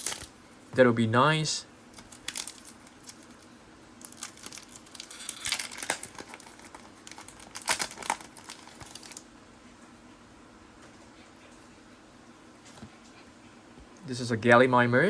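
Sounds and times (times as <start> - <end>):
wrapper and cards crinkling: 0.0 - 0.3, 1.8 - 9.2.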